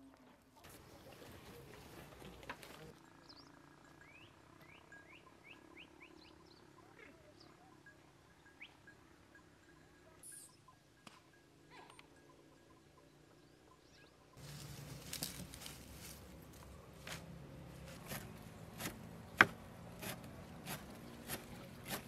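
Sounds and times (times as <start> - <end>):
bird chirps rising in pitch: 3.2 - 10.9
faint rustling: 14.4 - 17.2.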